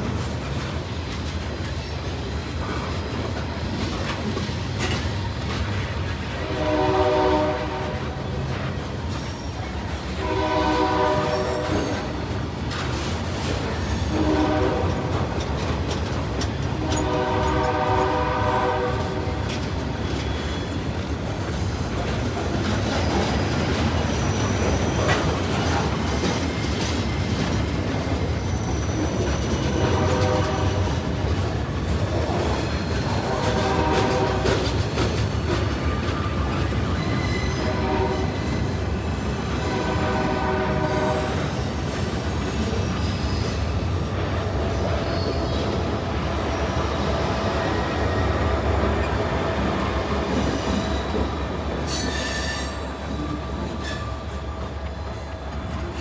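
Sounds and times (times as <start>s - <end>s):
locomotive chime horn: 6.4s - 8.3s, 10.1s - 12.3s, 14.1s - 15.2s, 16.8s - 19.4s, 29.6s - 31.0s, 33.1s - 34.6s, 37.1s - 38.6s, 39.6s - 41.4s.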